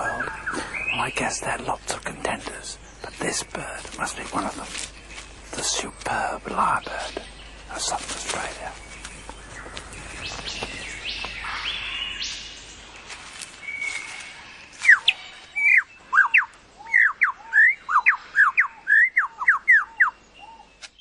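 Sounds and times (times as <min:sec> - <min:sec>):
faint bird calls: 0:00.0 - 0:12.6, 0:13.5 - 0:21.0
forest hiss: 0:00.0 - 0:16.7
lyrebird singing whistled notes: 0:13.6 - 0:20.8.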